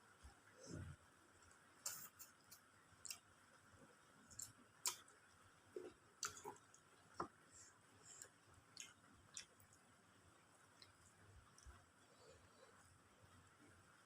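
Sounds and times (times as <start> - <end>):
person chewing: 5.7 - 6.9, 8.1 - 9.8.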